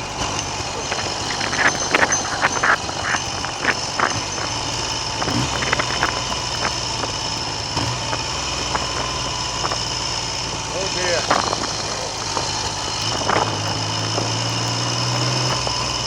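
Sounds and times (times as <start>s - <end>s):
motorcycle engine running: 0.0s - 16.0s
sharp pops: 0.0s - 16.0s
wind noise on microphone: 0.0s - 16.0s.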